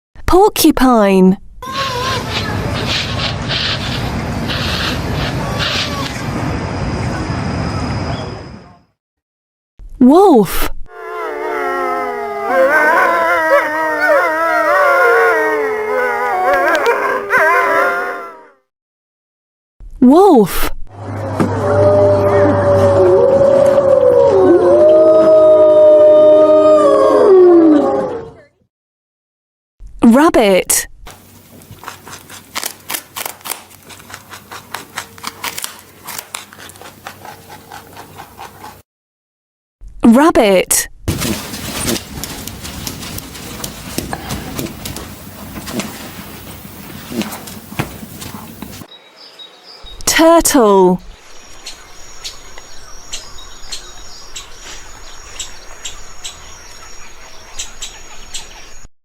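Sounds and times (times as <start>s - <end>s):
rabbit chewing: 31.1s - 38.8s, 41.2s - 48.9s.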